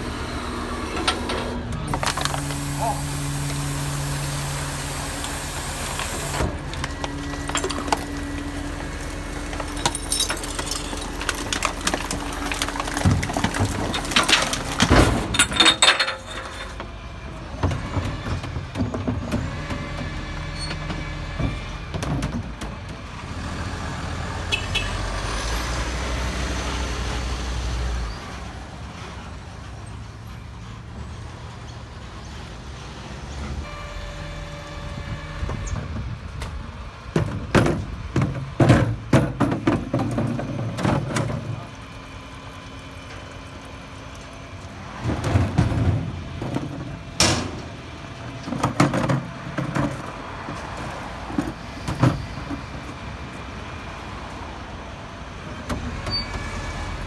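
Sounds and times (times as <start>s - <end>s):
garbage truck diesel engine: 0.0s - 57.0s
clattering and knocks: 6.4s - 16.9s, 37.1s - 41.6s, 45.0s - 52.9s.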